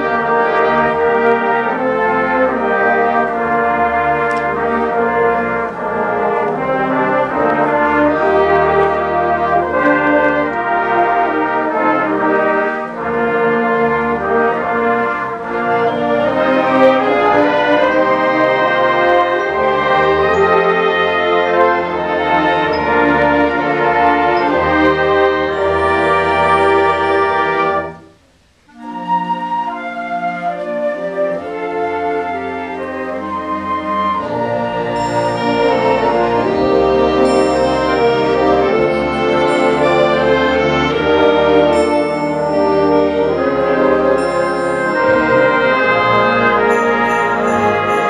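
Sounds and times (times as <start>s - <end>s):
concert band playing: 30.4s - 48.0s.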